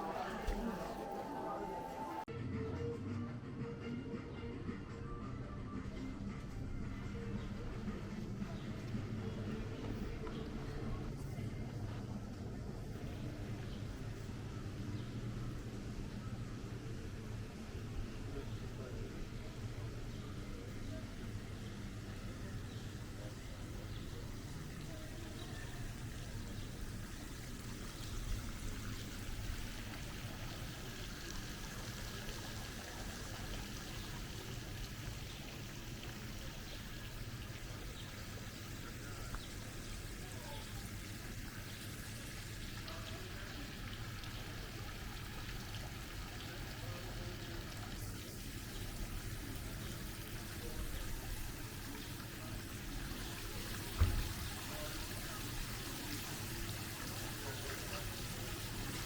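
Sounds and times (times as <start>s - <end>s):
faint voices: 0.0s - 3.0s, 4.8s - 59.0s
water trickling: 12.9s - 59.0s.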